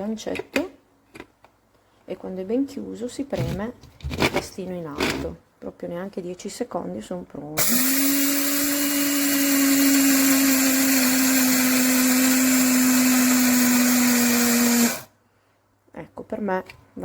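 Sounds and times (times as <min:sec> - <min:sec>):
coffee grinder chopping seeds: 0:07.6 - 0:15.1.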